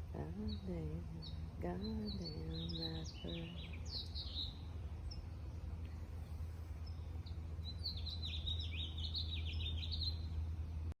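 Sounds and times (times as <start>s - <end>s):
songbird chirping: 0.0s - 11.0s
steady low hum: 0.0s - 11.0s.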